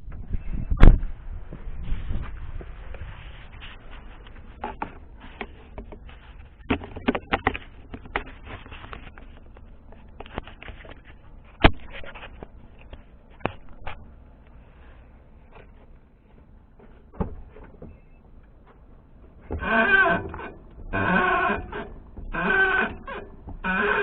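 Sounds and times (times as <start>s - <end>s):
suspension creaking and knocking: 0.0s - 14.2s, 15.5s - 24.0s
low road rumble: 0.0s - 24.0s
clicks and squeaks: 2.9s - 14.1s, 19.4s - 24.0s.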